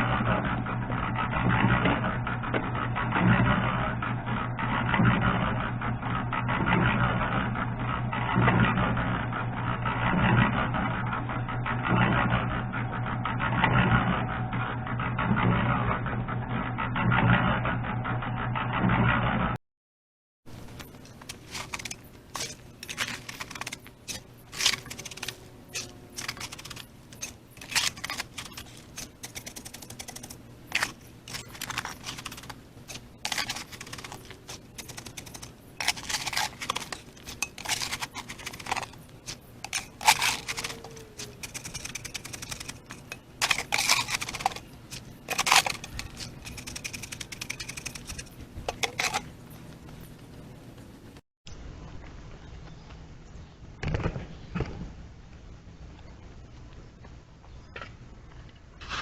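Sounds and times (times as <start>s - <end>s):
hand tools scraping concrete: 20.9s - 49.3s.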